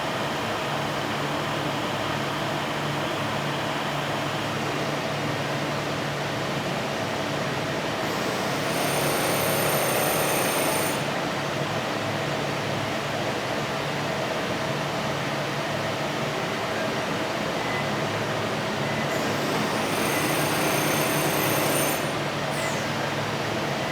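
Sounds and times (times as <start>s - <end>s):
machining equipment humming: 22.2s - 23.9s.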